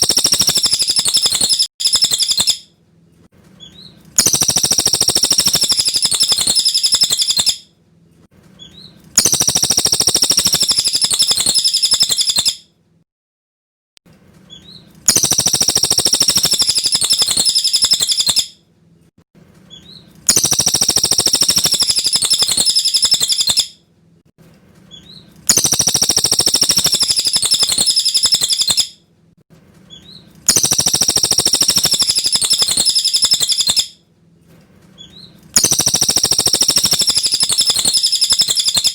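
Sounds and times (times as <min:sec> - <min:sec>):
bird trilling song: 0:00.0 - 0:02.7, 0:03.6 - 0:07.7, 0:08.6 - 0:12.6, 0:14.5 - 0:18.6, 0:19.7 - 0:23.8, 0:24.9 - 0:29.0, 0:29.9 - 0:34.0, 0:35.0 - 0:38.9.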